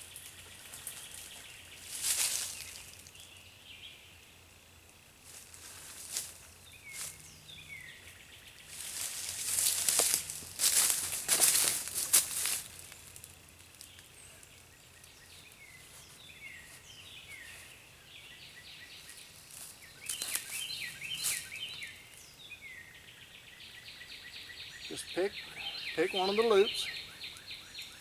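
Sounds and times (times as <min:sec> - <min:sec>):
birds chirping: 0:00.0 - 0:04.4, 0:06.0 - 0:13.0, 0:13.8 - 0:28.0
rustling and scraping: 0:08.7 - 0:13.3.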